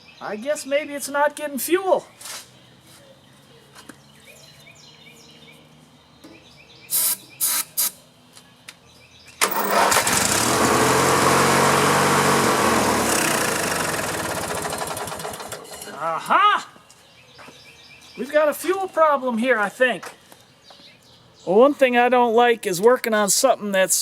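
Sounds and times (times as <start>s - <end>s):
lawn mower engine cranking and running: 9.4s - 16.0s.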